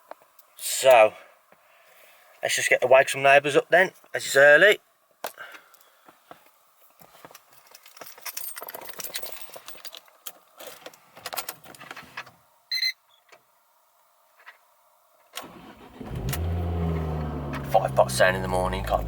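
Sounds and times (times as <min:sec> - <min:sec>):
car keys jangling: 0:07.6 - 0:10.8.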